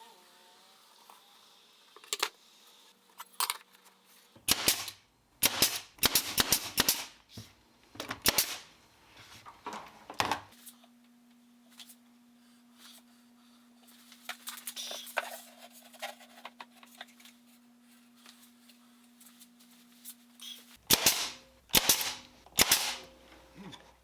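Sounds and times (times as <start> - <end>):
sharp cracks: 4.5 - 7.2, 8.2 - 8.7, 20.9 - 23.1.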